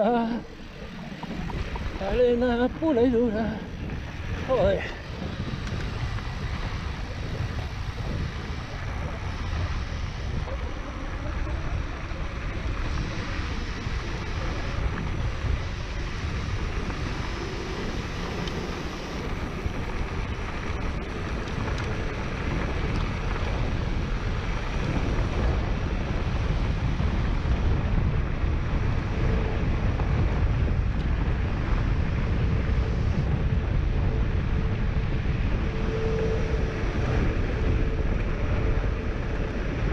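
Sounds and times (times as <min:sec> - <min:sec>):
bike tyres rolling on dirt: 0:00.0 - 0:39.9
wind buffeting microphone: 0:00.0 - 0:39.9
faint thin whine: 0:32.5 - 0:39.9.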